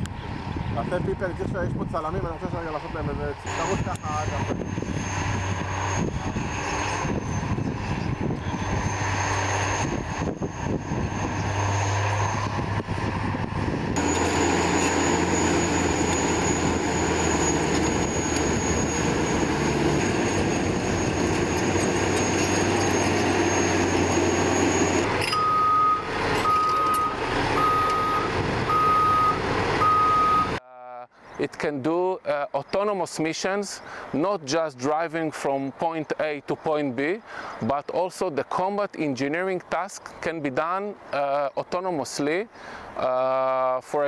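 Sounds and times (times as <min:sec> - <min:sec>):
bulldozer diesel engine running: 0:02.8 - 0:30.6
reversing alarm beeping: 0:03.5 - 0:07.6, 0:14.0 - 0:30.6.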